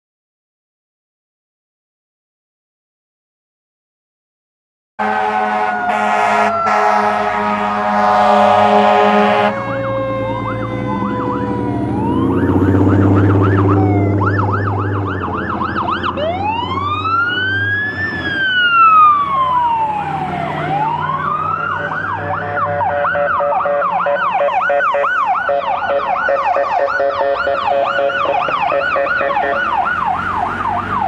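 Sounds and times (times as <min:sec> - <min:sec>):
fire truck siren wailing and yelping: 0:05.0 - 0:31.0
heavy truck engine running: 0:05.5 - 0:24.0, 0:26.1 - 0:31.0.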